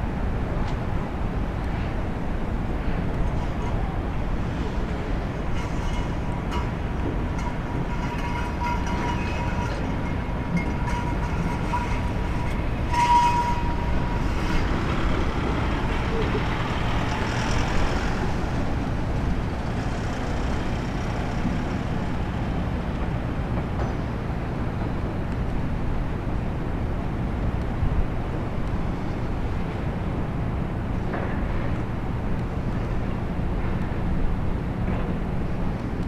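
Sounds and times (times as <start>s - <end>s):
jetfoil low rumble: 0.0s - 36.0s
thin whine: 3.3s - 19.1s.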